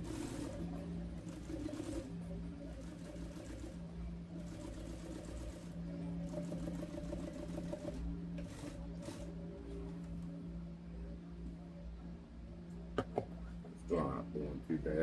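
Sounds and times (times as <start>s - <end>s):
sewing machine stitching: 0.0s - 3.8s, 4.4s - 9.3s.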